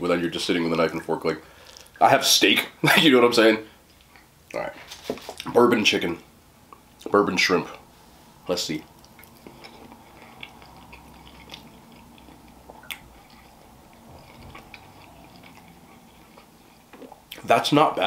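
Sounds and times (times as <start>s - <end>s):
person chewing: 8.8s - 17.5s.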